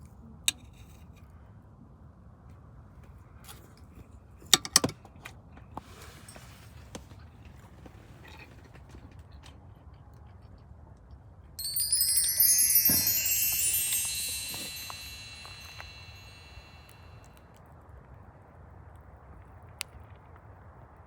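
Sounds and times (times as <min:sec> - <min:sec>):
chimes ringing: 0:11.6 - 0:17.2.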